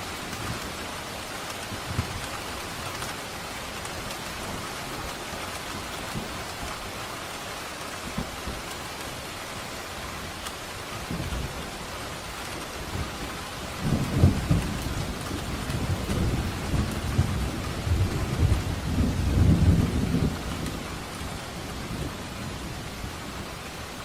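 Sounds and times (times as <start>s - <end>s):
steady rain falling: 0.0s - 24.0s
low rumble of thunder: 12.8s - 23.7s.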